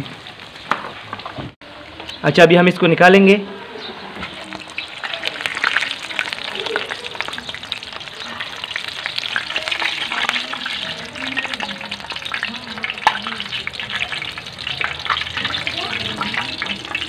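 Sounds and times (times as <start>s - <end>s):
donuts sizzling in hot oil: 4.2s - 17.0s.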